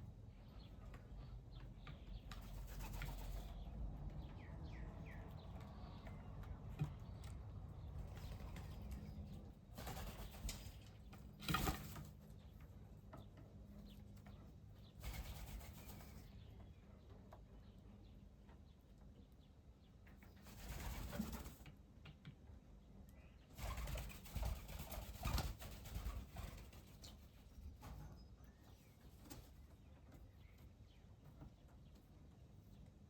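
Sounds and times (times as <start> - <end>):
dove wings flapping: 9.7 - 10.8, 11.4 - 12.1, 15.0 - 16.2, 20.5 - 21.6, 23.6 - 27.1.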